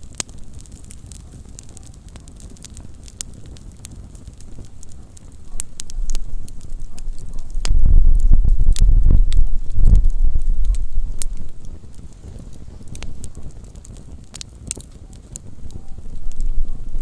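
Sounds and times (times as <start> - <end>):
campfire crackling and popping: 0.0 - 17.0
low rumble: 5.6 - 12.0.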